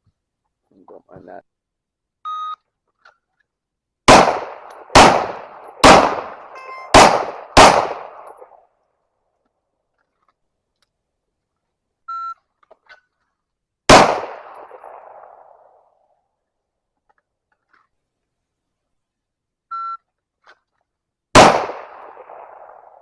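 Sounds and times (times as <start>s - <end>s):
pistol shots with ringing tail: 4.1s - 8.6s, 13.9s - 15.9s, 21.4s - 23.0s
electronic shot-timer beep: 6.6s - 7.0s.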